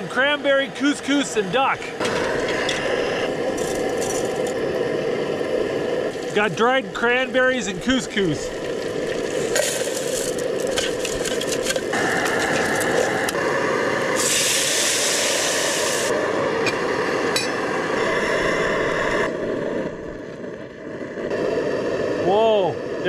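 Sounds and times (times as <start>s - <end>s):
loud rushing hiss: 0.0s - 23.0s
sizzling hiss: 0.0s - 23.0s
utensils clinking and scraping: 9.5s - 13.1s.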